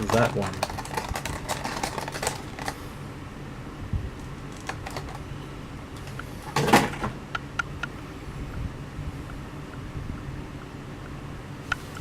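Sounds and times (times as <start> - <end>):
plastic packaging handled: 0.0 - 2.8, 4.2 - 5.2.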